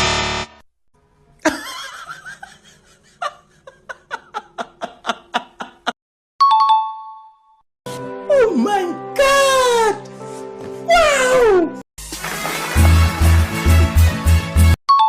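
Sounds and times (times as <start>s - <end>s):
snickering laugh: 1.4s - 6.0s.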